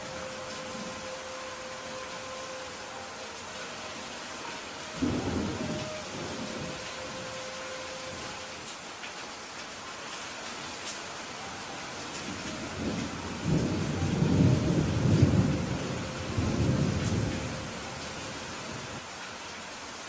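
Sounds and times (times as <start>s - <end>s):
steady rainfall: 0.0s - 20.0s
rolling thunder: 5.0s - 7.2s, 12.8s - 17.8s.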